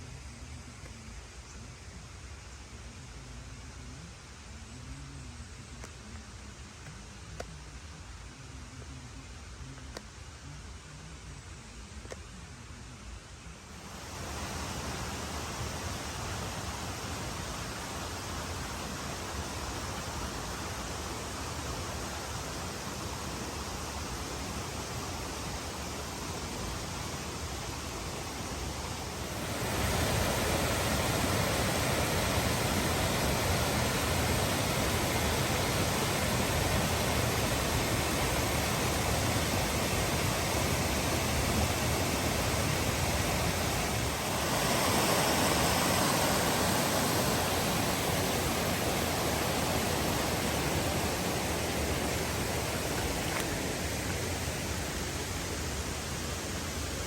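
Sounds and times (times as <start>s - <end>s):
river rushing over rapids: 13.7s - 57.0s.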